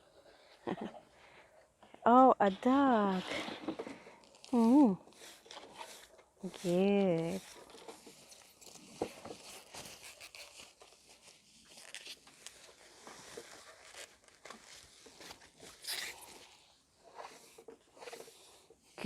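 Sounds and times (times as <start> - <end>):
packaging rustling and crinkling: 3.1 - 18.9.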